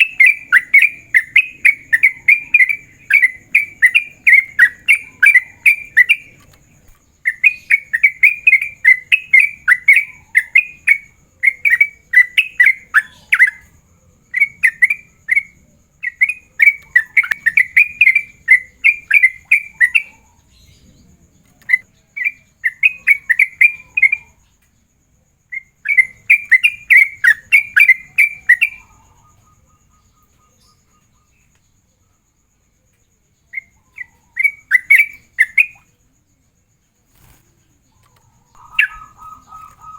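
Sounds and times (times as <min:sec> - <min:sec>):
bird singing bubbly notes: 0:38.5 - 0:39.9.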